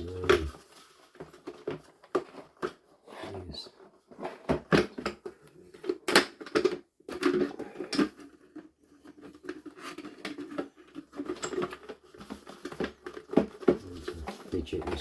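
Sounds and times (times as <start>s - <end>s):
plastic scraping: 0.0s - 15.0s
plastic clicks and knocks: 4.2s - 15.0s.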